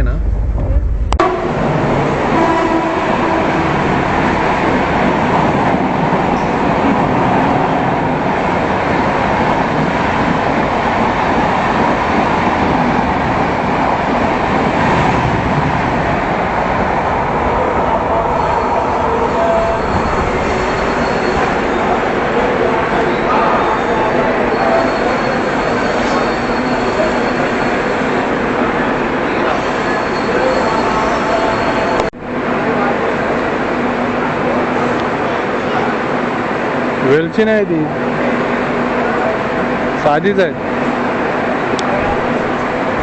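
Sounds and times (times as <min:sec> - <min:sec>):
wheel squeal: 0:19.8 - 0:21.8, 0:24.5 - 0:27.9, 0:29.6 - 0:32.1.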